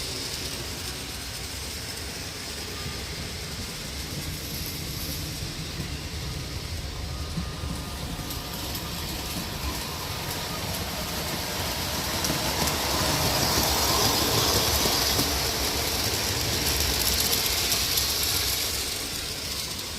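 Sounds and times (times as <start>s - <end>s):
model train rumbling on track: 0.0s - 19.9s.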